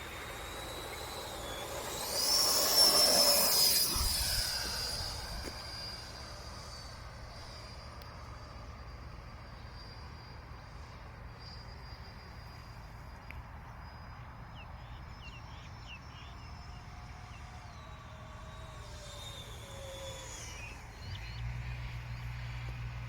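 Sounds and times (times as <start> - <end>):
high whine of model jet: 0.0 - 23.0
bird chirps: 14.5 - 17.4.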